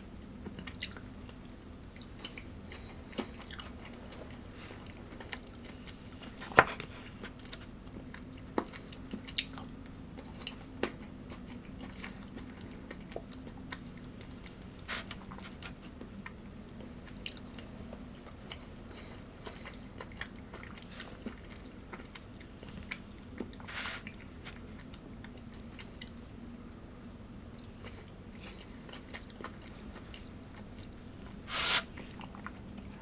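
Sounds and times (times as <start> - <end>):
faint steady hum: 0.0 - 33.0
person chewing food: 0.4 - 26.3, 27.5 - 33.0.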